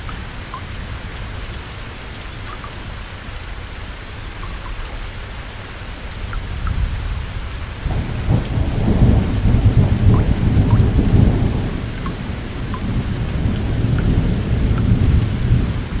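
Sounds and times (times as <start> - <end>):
steady rain: 0.0 - 16.0
thunder rumbling: 6.8 - 16.0.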